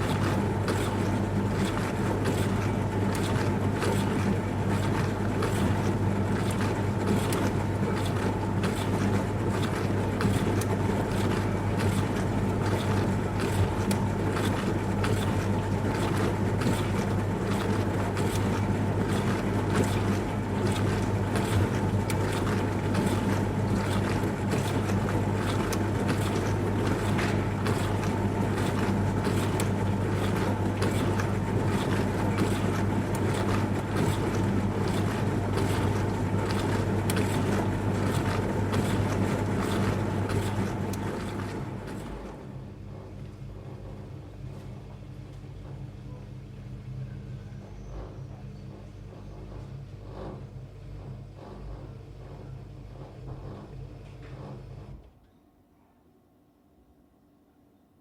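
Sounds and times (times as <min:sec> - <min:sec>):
water spraying inside tub: 0:00.0 - 0:43.2
dishwasher pump motor humming: 0:00.0 - 0:55.3.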